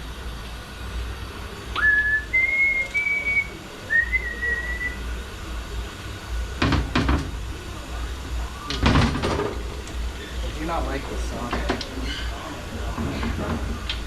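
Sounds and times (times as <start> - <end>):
person whistling: 1.8 - 5.0
sharp knocks: 6.6 - 7.4.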